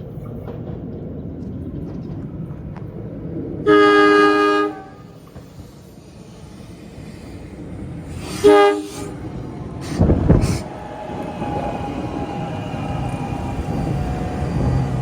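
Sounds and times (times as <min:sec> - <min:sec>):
train rumble: 0:00.0 - 0:15.0
train horn blast: 0:03.6 - 0:05.3, 0:08.2 - 0:09.2.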